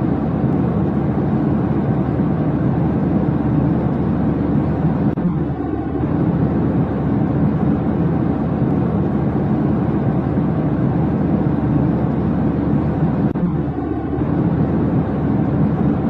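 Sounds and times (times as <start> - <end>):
steady low rumbling: 0.0 - 16.0.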